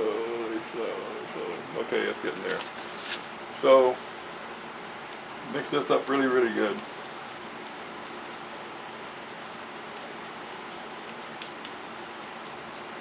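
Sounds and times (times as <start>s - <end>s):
stirring scraping in a cup: 5.6s - 13.0s.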